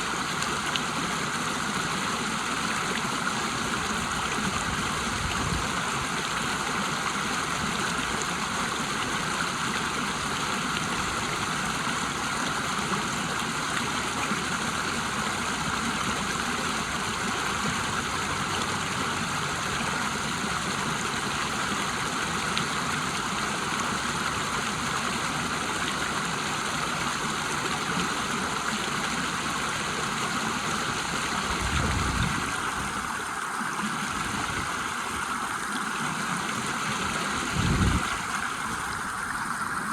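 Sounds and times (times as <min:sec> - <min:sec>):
river water rushing over waterfall: 0:00.0 - 0:39.9.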